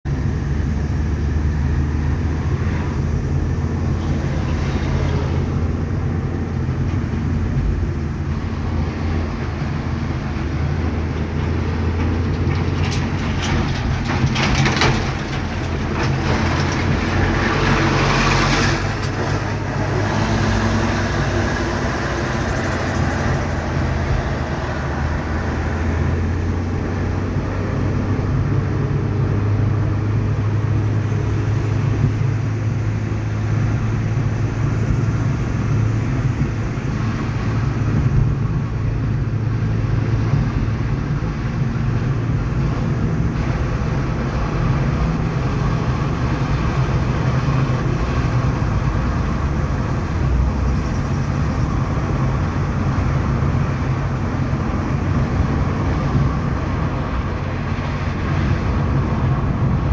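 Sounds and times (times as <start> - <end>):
ocean surf rumbling: 51.4 - 59.9.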